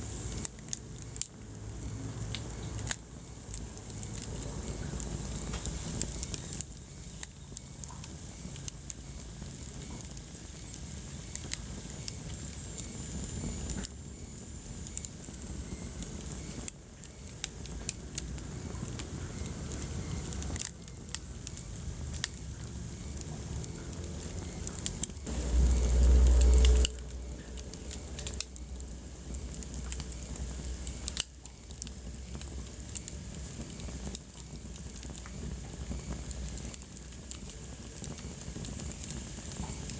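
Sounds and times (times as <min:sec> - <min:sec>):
wood fire crackling and popping: 0:00.0 - 0:39.9
low rumble: 0:21.4 - 0:32.0.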